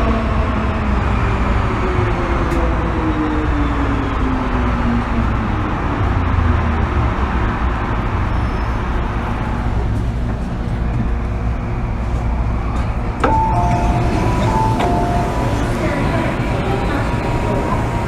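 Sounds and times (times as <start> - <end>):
train rumbling on track: 0.0 - 18.0
train motor whine: 13.2 - 18.0.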